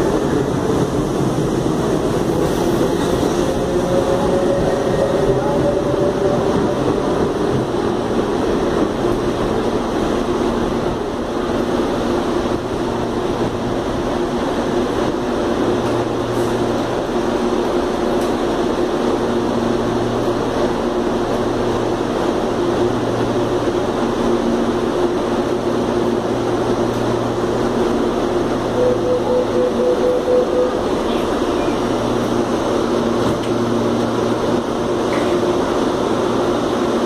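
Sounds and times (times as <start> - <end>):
train pulling out: 0.0 - 37.0.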